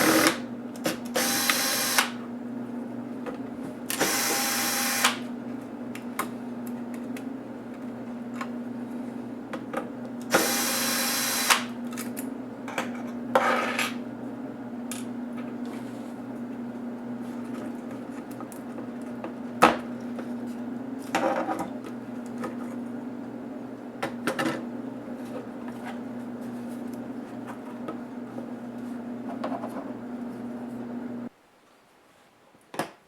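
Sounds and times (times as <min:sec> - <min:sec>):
electric screwdriver running: 0:00.0 - 0:00.4, 0:01.1 - 0:02.2, 0:03.9 - 0:05.2, 0:10.3 - 0:11.7.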